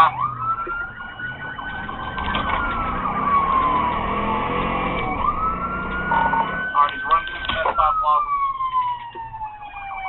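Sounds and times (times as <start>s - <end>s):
car engine and road noise: 0.0s - 10.0s
police siren wailing: 0.0s - 10.0s.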